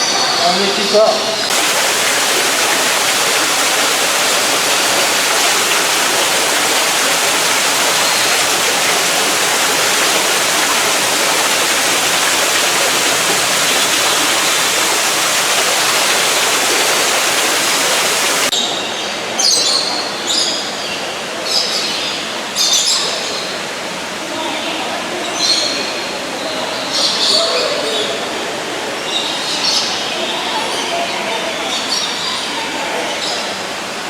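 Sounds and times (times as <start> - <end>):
rushing water: 1.5 - 18.5.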